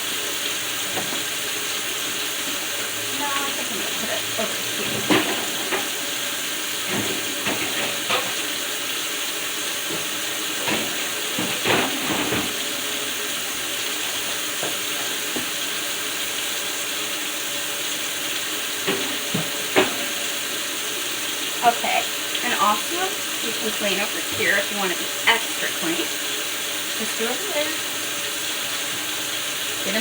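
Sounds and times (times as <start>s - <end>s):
containers knocking and clattering: 3.8s - 6.0s, 9.8s - 12.8s, 18.8s - 20.5s.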